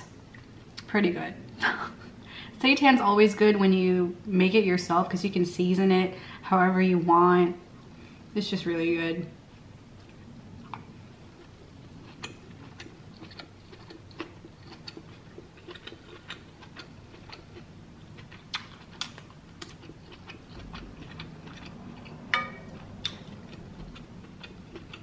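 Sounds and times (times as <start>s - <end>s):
chewing with mouth clicks: 10.0s - 25.0s.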